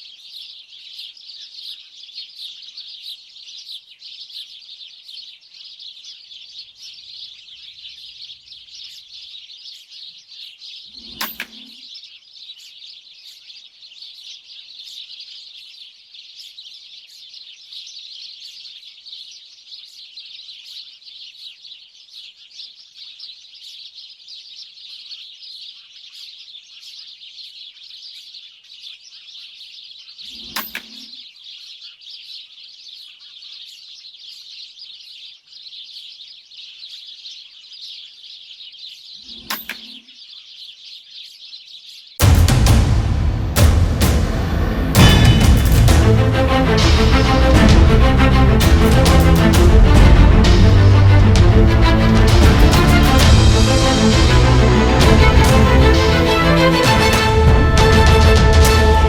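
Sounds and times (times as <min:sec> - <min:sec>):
flock of birds chirping: 0:00.0 - 0:45.9.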